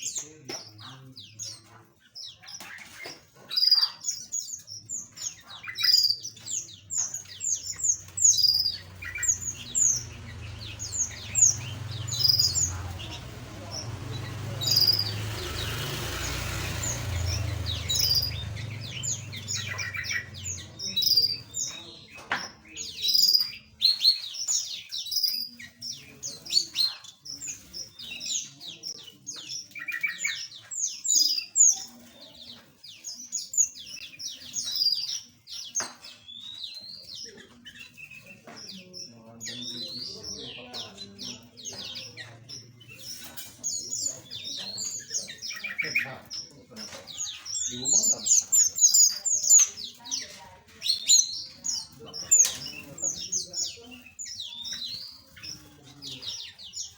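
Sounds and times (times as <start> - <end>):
small birds chirping: 0.0 - 56.9
low rumbling noise: 8.8 - 20.9.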